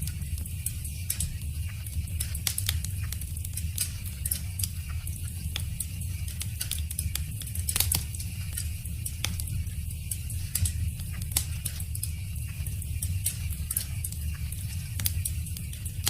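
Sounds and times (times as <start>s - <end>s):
low rumble of flame: 0.0s - 16.0s
burning wood popping and snapping: 2.1s - 4.6s, 6.3s - 9.5s, 10.5s - 12.1s, 15.0s - 15.8s.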